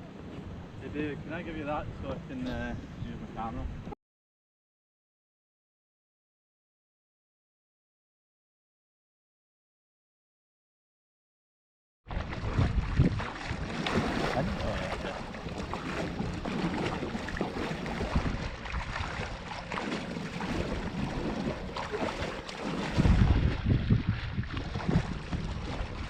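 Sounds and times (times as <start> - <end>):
wind buffeting microphone: 0.0 - 3.9, 12.1 - 26.0
sea water washing: 12.1 - 26.0.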